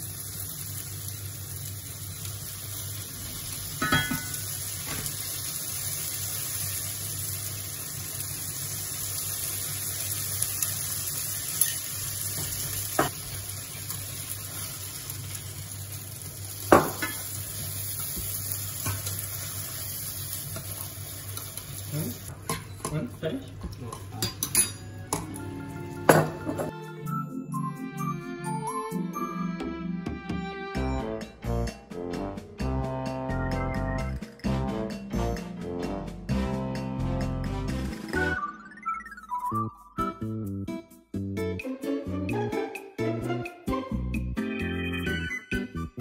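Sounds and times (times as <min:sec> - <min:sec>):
food sizzling in a frying pan: 0:00.0 - 0:26.7
utensils clinking against pan: 0:03.7 - 0:05.1, 0:11.4 - 0:13.2, 0:16.7 - 0:19.6, 0:20.4 - 0:26.7.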